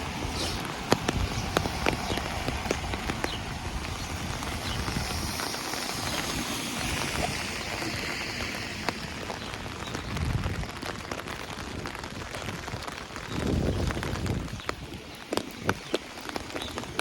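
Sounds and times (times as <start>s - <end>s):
broad hiss: 0.0s - 1.6s, 4.0s - 9.5s
rain drumming on umbrella: 0.0s - 17.0s.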